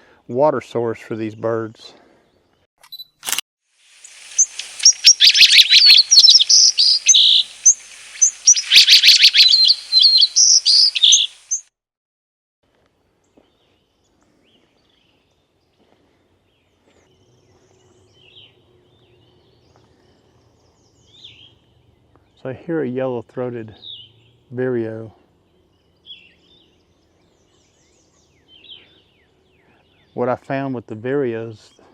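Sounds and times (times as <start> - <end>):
camera shutter clicking: 2.9 - 3.4
songbird twittering: 3.9 - 11.6, 17.2 - 22.4
faint bird calls: 4.0 - 11.6.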